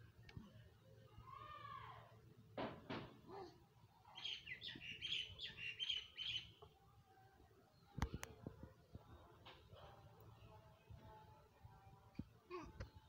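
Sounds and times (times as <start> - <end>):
small bird chirping: 4.1 - 6.7.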